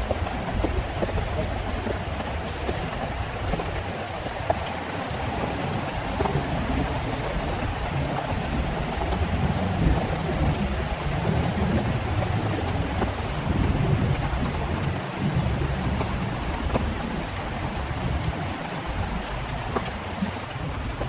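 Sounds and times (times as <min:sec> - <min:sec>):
heavy rain pouring: 0:00.0 - 0:21.0
thunder rumbling: 0:05.0 - 0:21.0.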